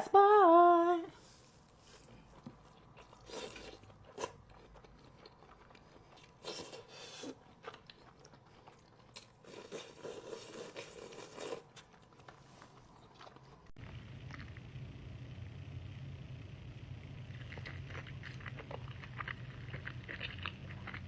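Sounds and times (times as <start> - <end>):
biting and chewing: 17.2 - 21.0.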